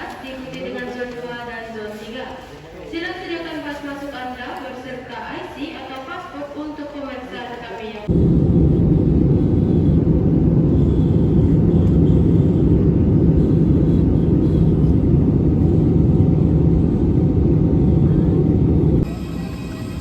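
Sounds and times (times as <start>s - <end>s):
constant low hum: 7.7s - 20.0s
moving vehicle rumble: 8.0s - 20.0s.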